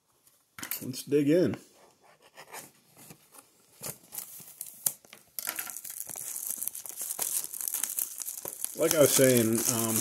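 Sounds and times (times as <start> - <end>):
plastic wrapping crinkling: 3.8 - 10.0.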